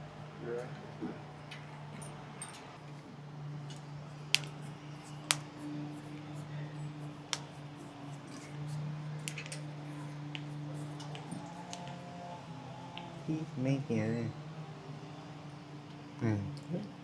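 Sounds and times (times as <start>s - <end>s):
steady low hum: 3.8s - 15.3s.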